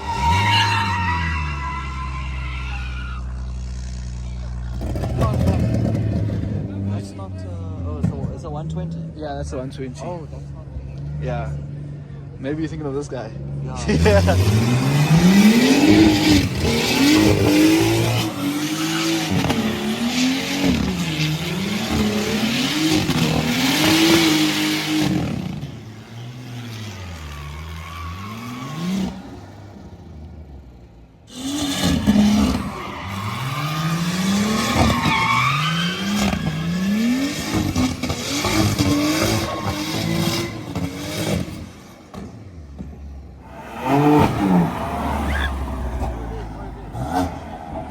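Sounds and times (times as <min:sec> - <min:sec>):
tyres screeching: 0:00.0 - 0:03.6, 0:31.3 - 0:41.0, 0:43.4 - 0:47.9
car engine revving: 0:00.0 - 0:09.2, 0:13.4 - 0:47.9.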